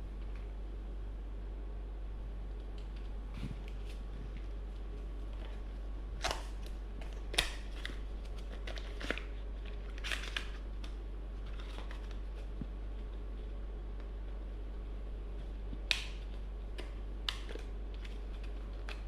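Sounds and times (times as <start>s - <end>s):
steady low hum: 0.0s - 19.0s
packaging rustling: 3.0s - 12.6s.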